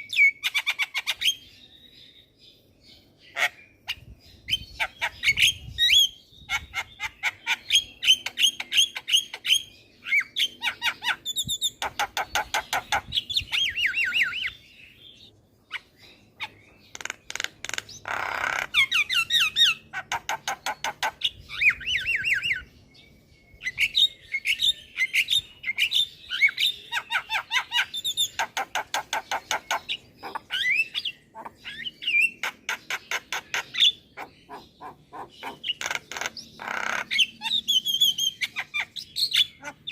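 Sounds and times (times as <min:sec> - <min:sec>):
myna chattering and whistling: 0:23.6 - 0:39.9
bird squawk: 0:26.4 - 0:39.9.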